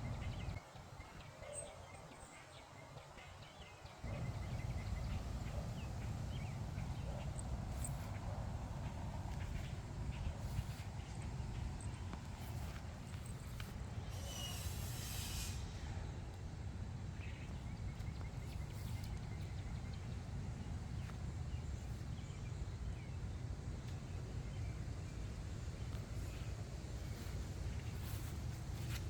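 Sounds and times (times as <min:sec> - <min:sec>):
steady low rumble: 0:04.0 - 0:14.0, 0:16.3 - 0:29.0
rustling hiss: 0:10.5 - 0:16.1.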